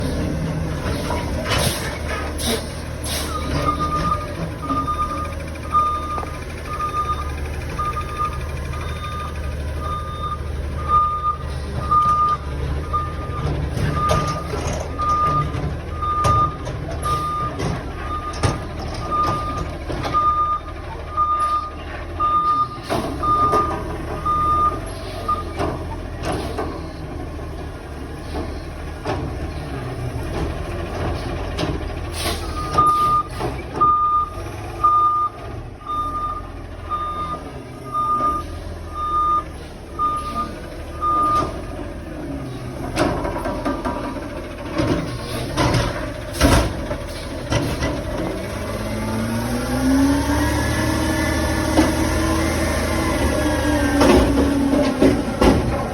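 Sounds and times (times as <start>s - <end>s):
diesel truck engine running: 0.0s - 55.9s
backup alarm beeping: 3.3s - 18.5s, 32.5s - 41.6s.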